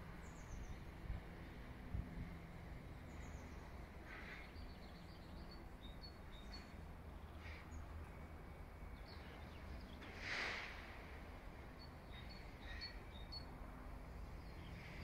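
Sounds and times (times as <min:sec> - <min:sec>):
small birds chirping: 0:02.9 - 0:08.2, 0:11.7 - 0:13.5
brief hiss: 0:10.0 - 0:11.1.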